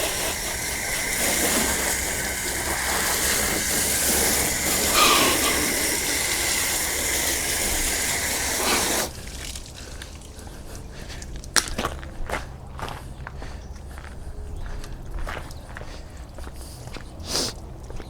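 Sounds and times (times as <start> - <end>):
water spraying with loud hiss: 0.0 - 10.4, 17.3 - 17.7.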